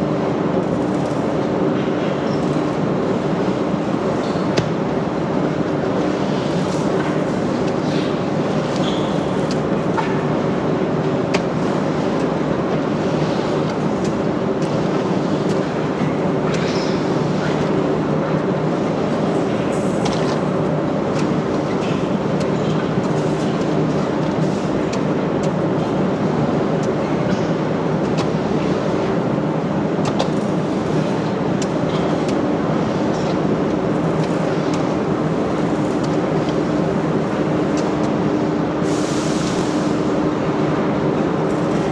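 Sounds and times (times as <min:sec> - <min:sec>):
production machinery running: 0:00.0 - 0:41.9.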